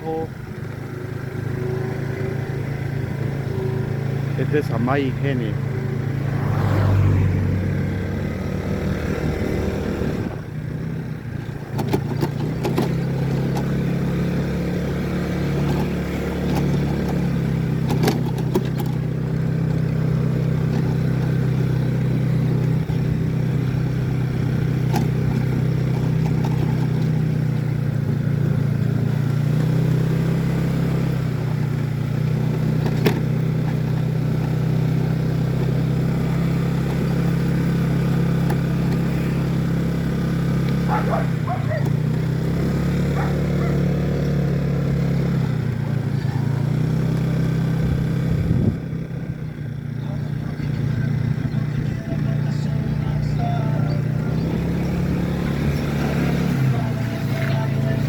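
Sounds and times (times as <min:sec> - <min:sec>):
engine running: 0:00.0 - 0:58.0
light engine knocks: 0:11.4 - 0:13.9, 0:15.6 - 0:20.0, 0:24.6 - 0:27.7, 0:32.5 - 0:34.6, 0:38.2 - 0:39.1.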